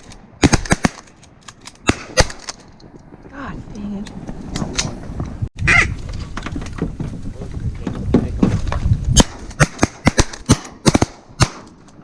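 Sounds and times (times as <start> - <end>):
wind buffeting microphone: 2.7 - 12.0.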